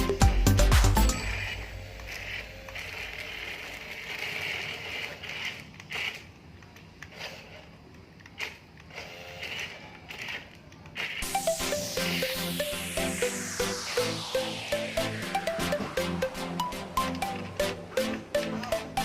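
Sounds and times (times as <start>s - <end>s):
toy electric motors whirring: 1.1s - 14.8s.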